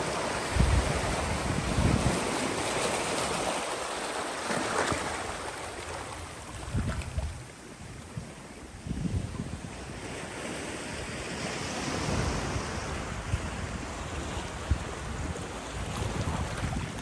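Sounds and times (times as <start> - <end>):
wind buffeting microphone: 0.0 - 3.6, 6.2 - 17.0
surf washing on rocky shore: 0.0 - 17.0.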